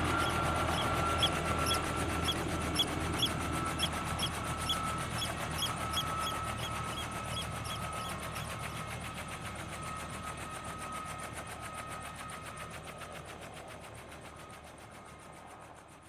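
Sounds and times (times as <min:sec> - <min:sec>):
high piping bird calls: 0:00.1 - 0:08.6.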